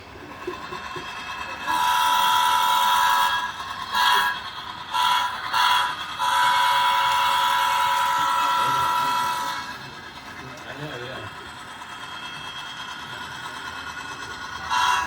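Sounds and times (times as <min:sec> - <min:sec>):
model locomotive air horn: 0:01.7 - 0:09.7, 0:14.7 - 0:15.0.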